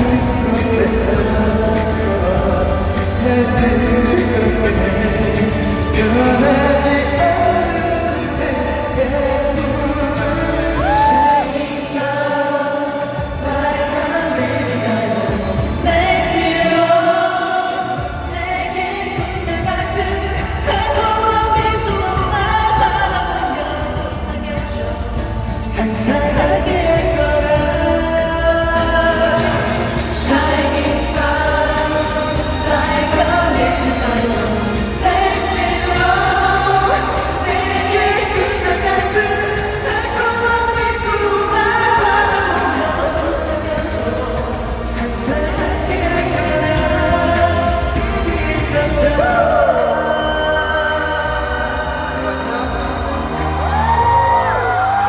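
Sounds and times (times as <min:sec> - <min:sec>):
live band playing: 0:00.0 - 0:55.0
man singing: 0:00.0 - 0:55.0.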